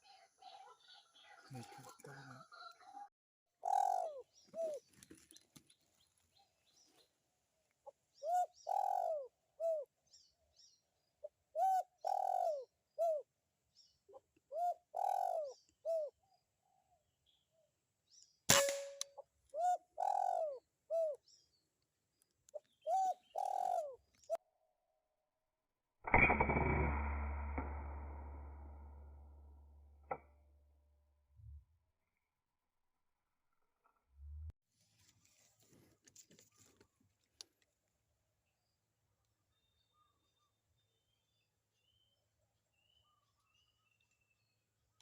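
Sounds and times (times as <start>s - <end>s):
dove cooing: 3.6s - 4.9s, 8.2s - 9.9s, 11.5s - 13.2s, 14.5s - 16.1s, 19.6s - 21.2s, 22.8s - 24.0s
air rifle shot: 18.5s - 19.0s.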